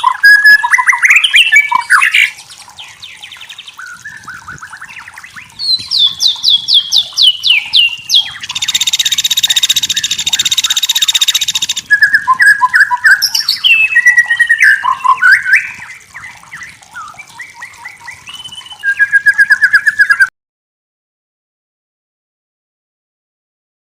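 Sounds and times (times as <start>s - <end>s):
songbird whistling and rattling: 3.8s - 16.0s, 16.6s - 20.3s.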